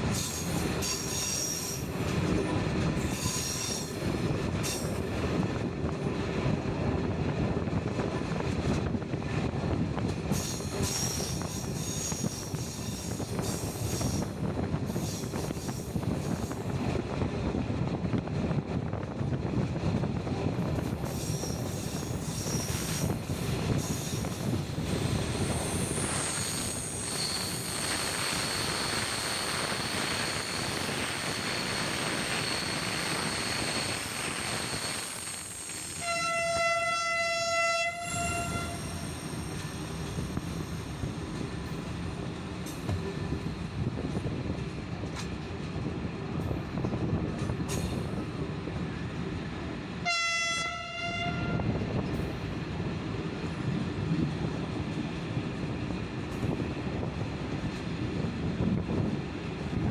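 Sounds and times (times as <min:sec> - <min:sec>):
train wheels rumbling on rail: 0:00.0 - 0:59.9
high wheel squeal: 0:21.1 - 0:36.6, 0:37.4 - 0:41.4
locomotive horn: 0:35.9 - 0:39.1, 0:50.0 - 0:51.8.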